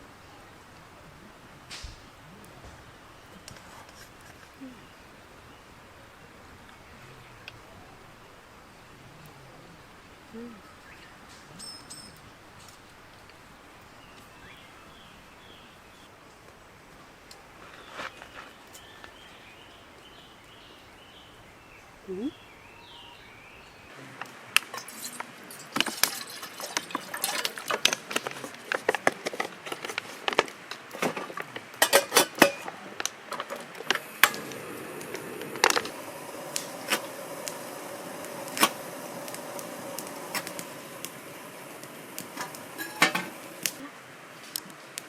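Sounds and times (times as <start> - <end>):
steady hiss: 0.0 - 45.0
cookware and utensils clinking: 11.4 - 12.3, 24.6 - 43.8.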